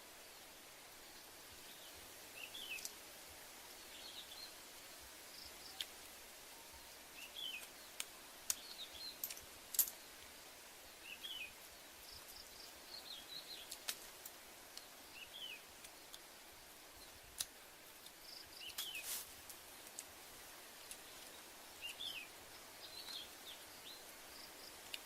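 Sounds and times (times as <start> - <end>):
steady outdoor hiss: 0.0 - 25.0
bird chirping: 1.7 - 2.9, 6.5 - 9.4, 11.0 - 13.9, 14.8 - 15.7, 21.0 - 25.0.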